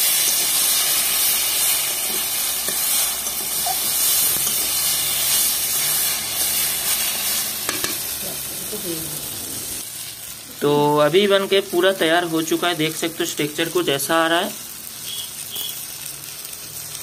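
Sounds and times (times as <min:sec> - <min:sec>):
metal spatula stirring: 0:00.0 - 0:08.1
greens sizzling in a pan: 0:00.0 - 0:17.0.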